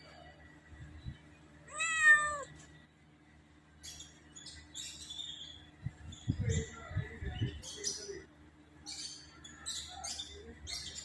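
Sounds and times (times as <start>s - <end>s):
cat meowing: 1.7s - 2.5s.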